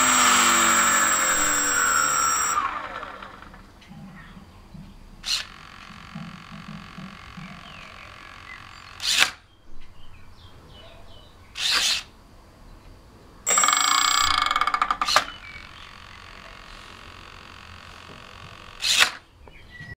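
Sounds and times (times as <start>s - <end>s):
short bursts of noise: 0.0s - 3.6s
small motor whirring: 0.0s - 3.6s, 13.5s - 14.7s, 15.7s - 19.1s.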